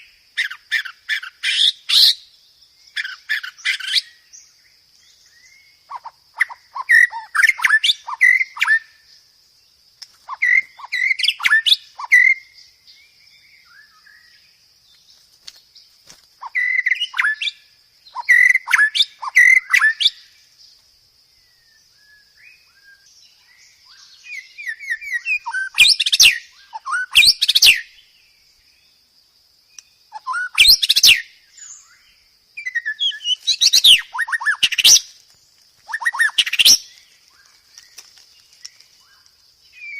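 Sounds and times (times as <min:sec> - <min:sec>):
bird singing whistled phrases: 0:16.4 - 0:20.3, 0:21.7 - 0:27.9, 0:29.8 - 0:35.1, 0:35.9 - 0:37.4.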